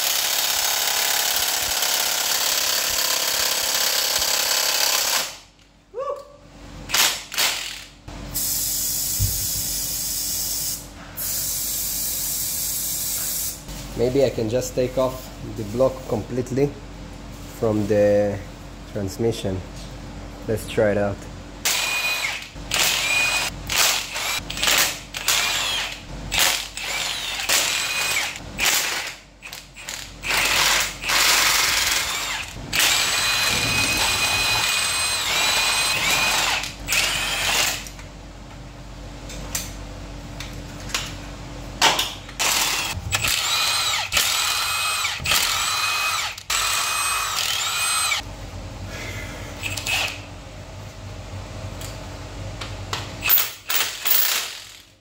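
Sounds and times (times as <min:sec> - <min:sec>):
drill-driver motor whine: 0:21.6 - 0:28.4, 0:29.4 - 0:37.9, 0:42.5 - 0:48.2, 0:49.6 - 0:50.2.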